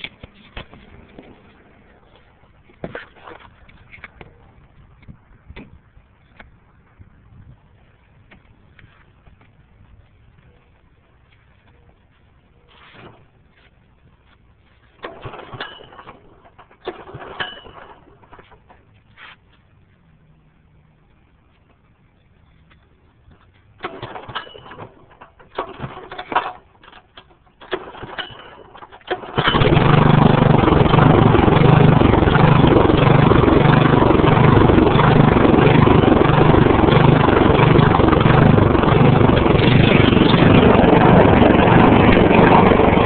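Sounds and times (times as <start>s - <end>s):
engine starting and running: 14.8s - 19.0s, 23.7s - 43.0s.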